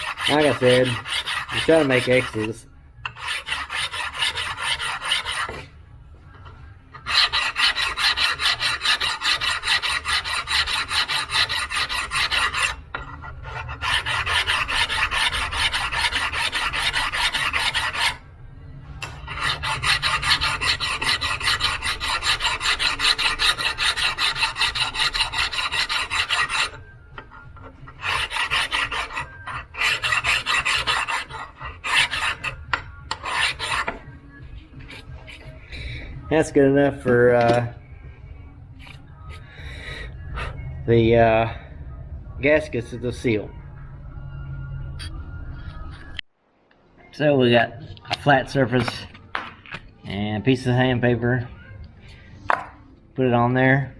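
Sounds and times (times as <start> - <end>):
hand file rasping on metal: 0.0 - 5.6, 7.0 - 18.2, 19.0 - 34.1.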